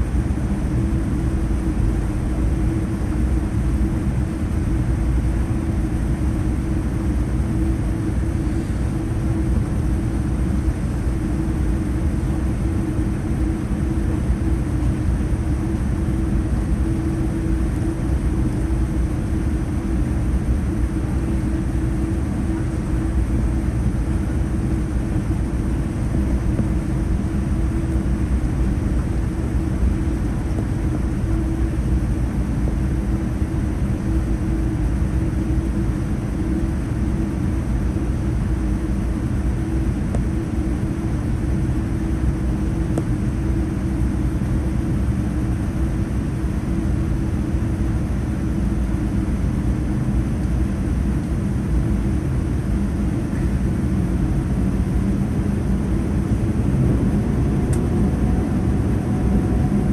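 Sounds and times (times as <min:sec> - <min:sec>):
aircraft engines idling: 0:00.0 - 0:59.9
cabin air: 0:05.3 - 0:33.7, 0:50.8 - 0:59.9.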